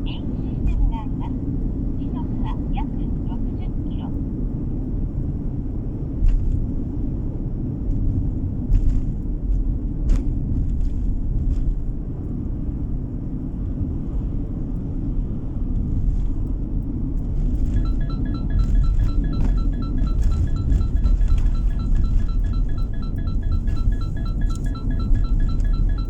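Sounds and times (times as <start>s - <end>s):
road and tyre rumble: 0.0s - 23.9s
chiming music: 17.8s - 26.0s.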